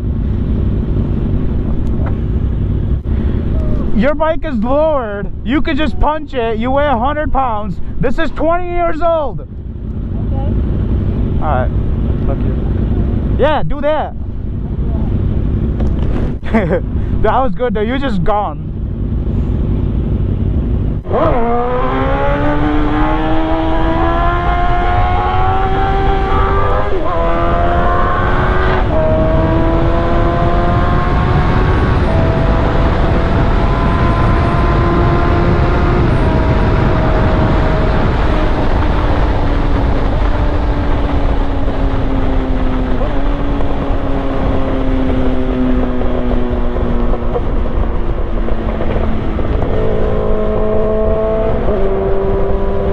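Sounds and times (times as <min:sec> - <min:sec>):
motorcycle engine accelerating: 0:00.0 - 0:07.6, 0:08.2 - 0:52.9
wind rush: 0:00.0 - 0:52.9.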